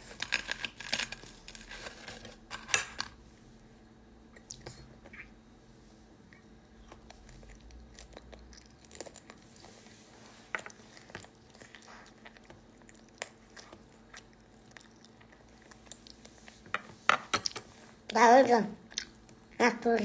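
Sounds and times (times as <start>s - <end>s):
person chewing food: 6.3s - 17.8s.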